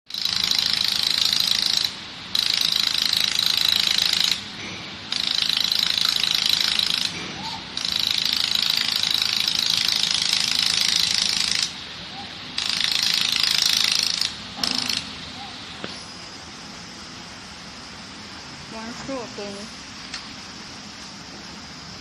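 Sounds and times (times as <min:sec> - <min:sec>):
laser welding buzzing crackle: 0:00.1 - 0:11.9, 0:12.5 - 0:15.2.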